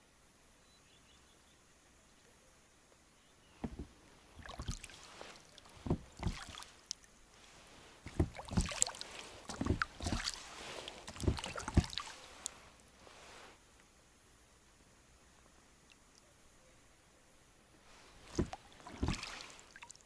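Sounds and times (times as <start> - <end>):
oar knocking: 3.6 - 4.9, 5.7 - 6.6, 8.1 - 10.4, 11.0 - 12.1, 18.3 - 19.4
oars splashing: 3.6 - 13.5, 17.8 - 20.0.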